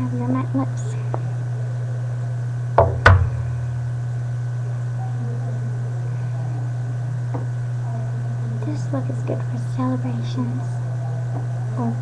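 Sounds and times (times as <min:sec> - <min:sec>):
steady low hum: 0:00.0 - 0:12.0
quick knocks: 0:02.8 - 0:03.5.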